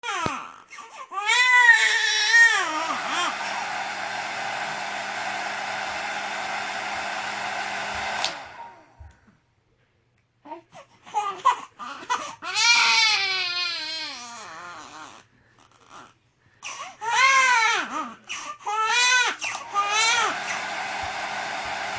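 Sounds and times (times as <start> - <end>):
infant crying: 0.0 - 3.3, 10.5 - 20.3
hair dryer blowing: 2.3 - 9.2, 19.4 - 21.9.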